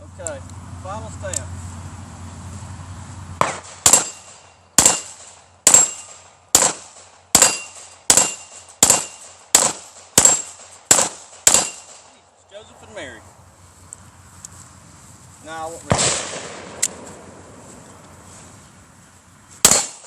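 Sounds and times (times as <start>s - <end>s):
gunshots: 3.4s - 12.2s, 15.8s - 17.4s, 19.6s - 20.0s
metallic ring of steel targets: 3.6s - 6.7s, 7.3s - 9.4s, 10.2s - 10.6s, 11.4s - 12.1s.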